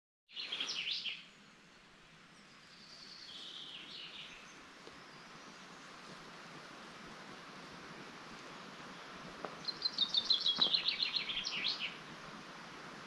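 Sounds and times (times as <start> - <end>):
faint background hiss: 0.3 - 13.0
songbirds chirping: 0.3 - 13.0.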